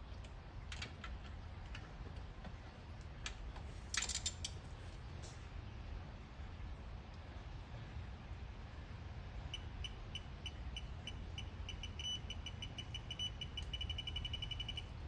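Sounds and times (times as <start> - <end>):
metallic clicks of hand tools: 3.9 - 4.6.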